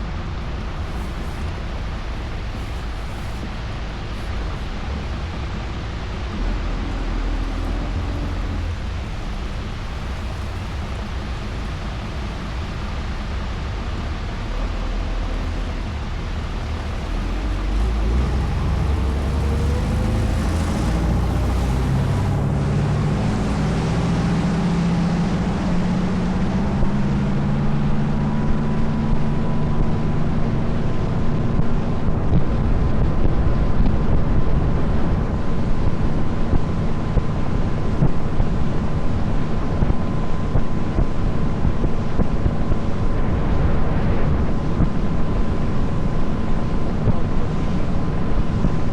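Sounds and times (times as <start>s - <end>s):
boat engine running: 0.0s - 48.9s
water rushing past hull: 0.0s - 48.9s
wind buffeting microphone: 0.0s - 48.9s.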